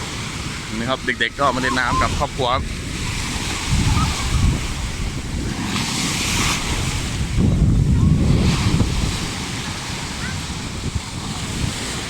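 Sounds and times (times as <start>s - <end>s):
sea waves breaking: 0.0s - 12.0s
wind buffeting microphone: 0.0s - 12.0s.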